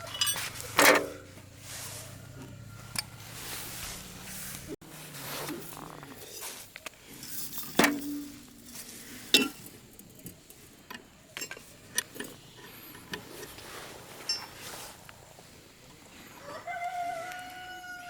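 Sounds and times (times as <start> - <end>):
metal tools clinking: 0.0 - 1.2, 6.1 - 10.7, 11.4 - 13.6, 14.2 - 14.7.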